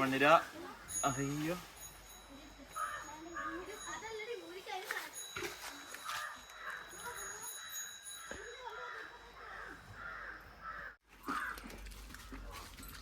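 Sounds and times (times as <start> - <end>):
crows cawing: 2.8 - 3.8, 6.0 - 12.5.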